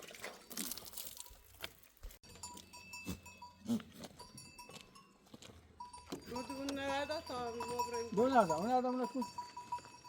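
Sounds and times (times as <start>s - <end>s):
livestock bells clinking: 2.2s - 10.0s.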